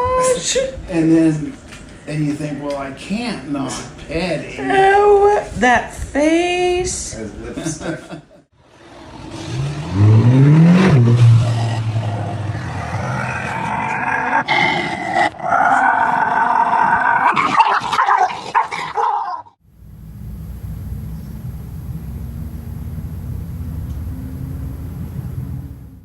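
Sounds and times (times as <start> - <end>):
dog crying: 15.7 - 19.6.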